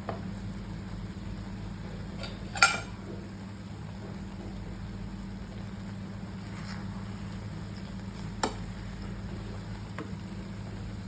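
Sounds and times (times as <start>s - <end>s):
noodles sizzling in a pan: 0.1s - 11.0s
utensil clinking against pan: 2.2s - 2.9s.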